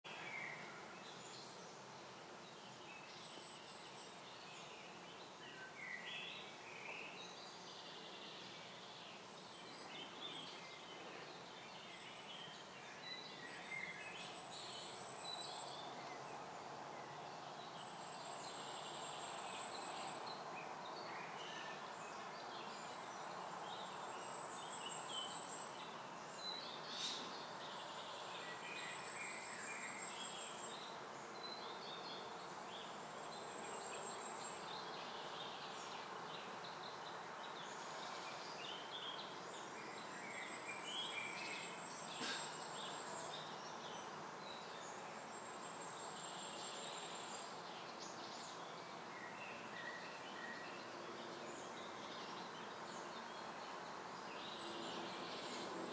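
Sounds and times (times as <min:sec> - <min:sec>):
bird chirps: 0:03.0 - 0:36.0.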